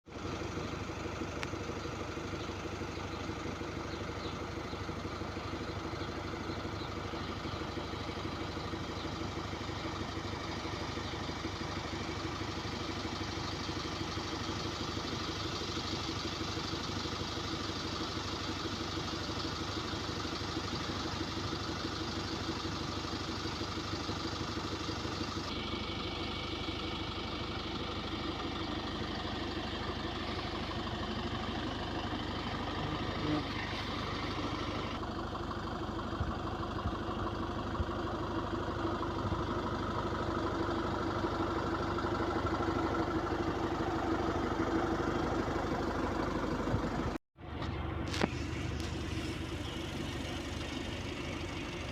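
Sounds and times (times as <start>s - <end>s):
diesel bus engine idling: 0.0s - 51.9s.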